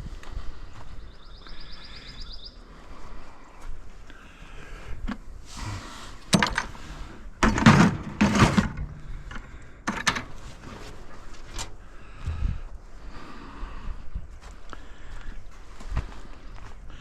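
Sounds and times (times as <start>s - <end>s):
scrap metal knocking and clattering: 6.3s - 11.7s.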